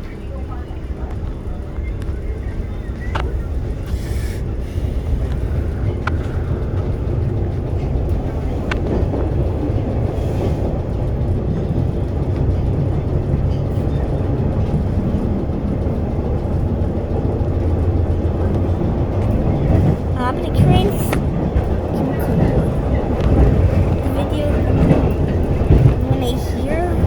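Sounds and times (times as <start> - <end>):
subway wheels rumbling on rails: 0.0 - 27.0.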